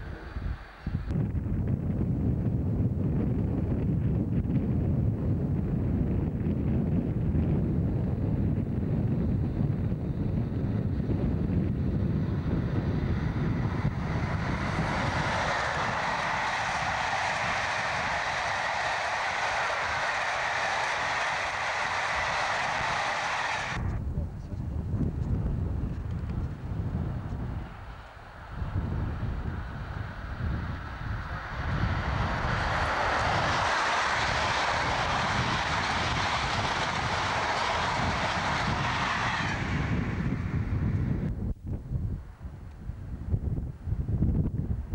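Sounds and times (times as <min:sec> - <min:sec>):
low train rumble: 0:00.0 - 0:44.9
train coaches rushing over rails: 0:12.5 - 0:23.8, 0:26.2 - 0:41.2.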